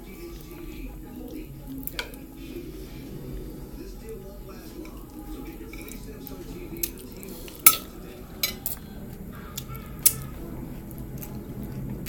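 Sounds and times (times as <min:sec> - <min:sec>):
cutlery clinking against dishes: 0:00.4 - 0:02.2, 0:04.7 - 0:08.9, 0:09.6 - 0:10.4.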